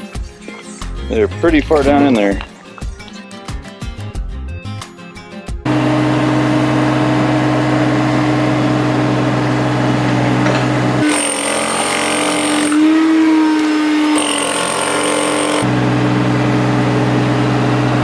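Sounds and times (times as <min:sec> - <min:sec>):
engine-driven machine droning: 0:05.7 - 0:11.8, 0:14.0 - 0:18.0.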